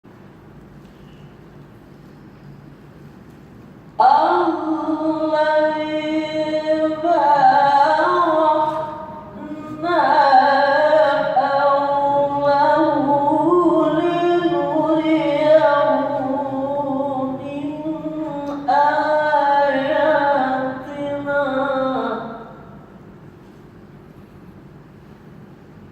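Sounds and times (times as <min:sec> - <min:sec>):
person chanting recitation: 0:04.0 - 0:22.6.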